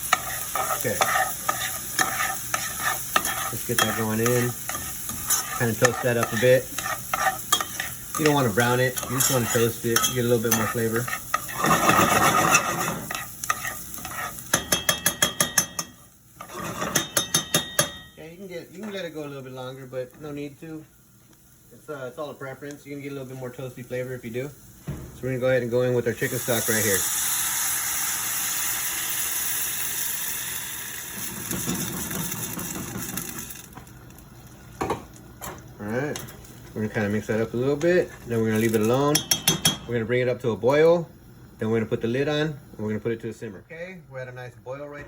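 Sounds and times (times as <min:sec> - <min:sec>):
utensil tapping and scraping pan: 0:00.0 - 0:18.1
food sizzling in hot oil: 0:00.0 - 0:39.8.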